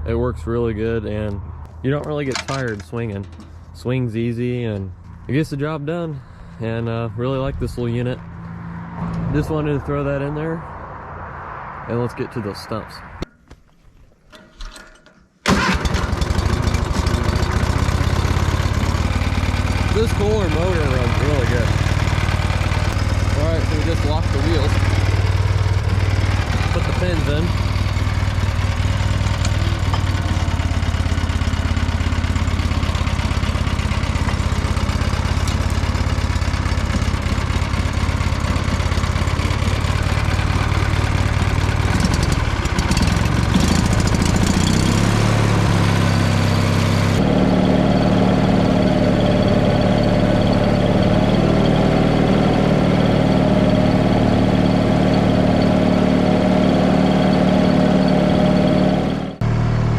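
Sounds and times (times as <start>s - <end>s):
stump grinder engine running: 15.5s - 59.9s.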